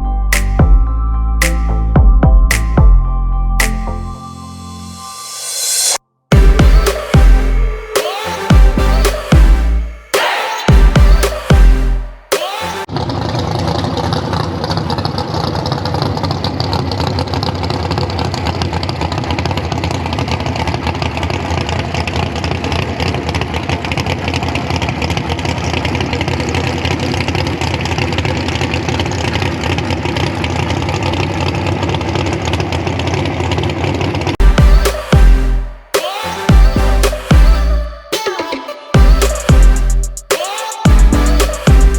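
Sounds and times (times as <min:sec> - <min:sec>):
truck engine rumbling: 0:06.3 - 0:35.9.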